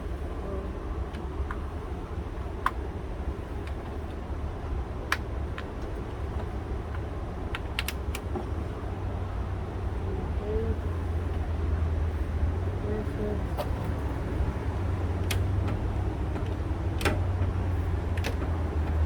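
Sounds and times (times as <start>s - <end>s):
car parts clicking and tapping: 3.6s - 4.2s, 5.0s - 8.5s, 15.2s - 19.0s.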